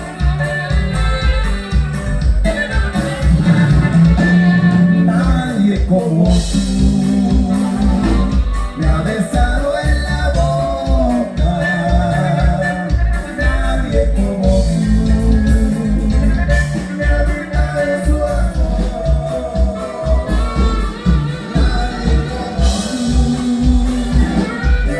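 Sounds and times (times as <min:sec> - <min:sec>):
band music: 0:00.0 - 0:24.9
pulsing bass beat: 0:00.0 - 0:24.9
person singing: 0:02.9 - 0:24.9.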